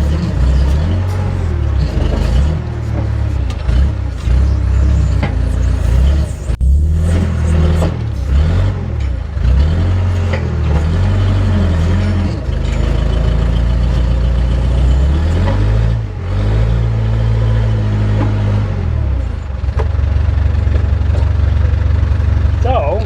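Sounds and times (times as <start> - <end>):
sharp clanks: 0.0 - 16.0
diesel engine revving: 0.0 - 23.0.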